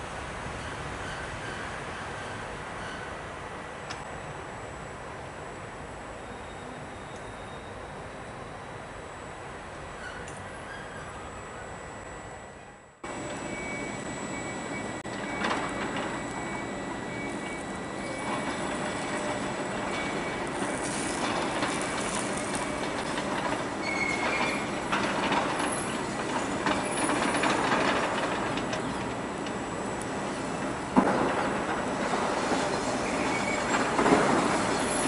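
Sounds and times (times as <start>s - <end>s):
high wheel squeal: 0.6s - 3.2s, 6.2s - 8.6s, 9.9s - 11.9s, 13.1s - 27.7s, 32.5s - 35.0s
train wheels clattering over rail joints: 15.1s - 35.0s.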